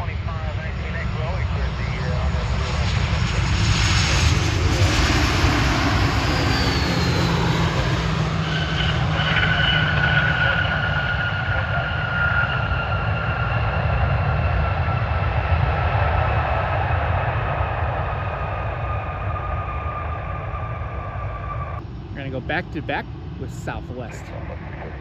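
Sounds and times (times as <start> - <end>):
jet engines running: 0.0 - 25.0
high two-tone whine: 17.5 - 25.0.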